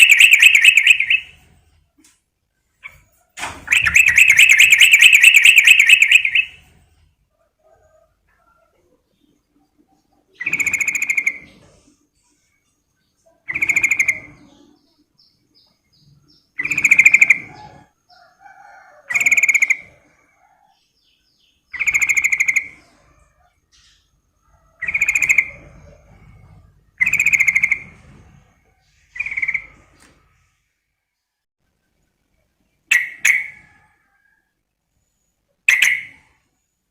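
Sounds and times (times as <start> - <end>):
bird chattering calls: 0.0 - 1.4, 3.7 - 6.6, 10.3 - 11.5, 13.5 - 14.7, 16.6 - 17.9, 35.7 - 36.2.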